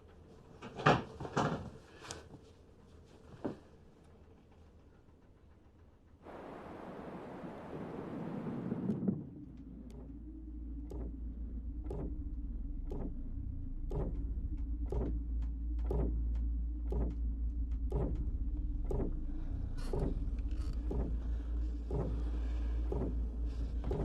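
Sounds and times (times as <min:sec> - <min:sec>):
deep drone: 0:06.2 - 0:24.0.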